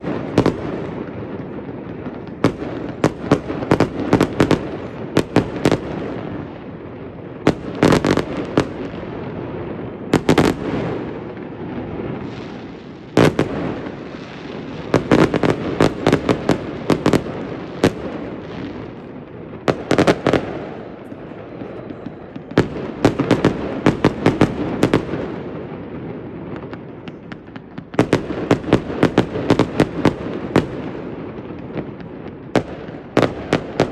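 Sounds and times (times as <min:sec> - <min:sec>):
distant fireworks rumble: 0:00.0 - 0:33.9
fireworks bangs and crackles: 0:00.0 - 0:33.9.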